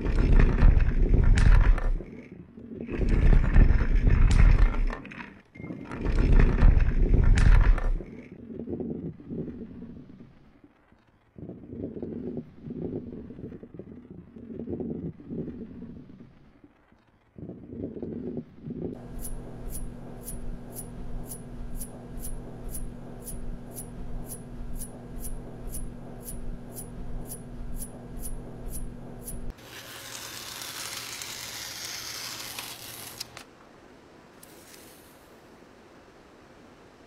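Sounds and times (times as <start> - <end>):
electronic hum: 17.4 - 29.6
sharp electronic ticks: 19.0 - 29.5
crackly hissing scrape: 29.6 - 33.5, 34.4 - 35.4.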